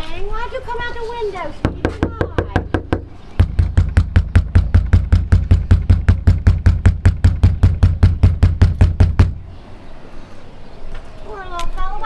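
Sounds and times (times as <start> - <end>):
fist banging on door: 1.6 - 9.4.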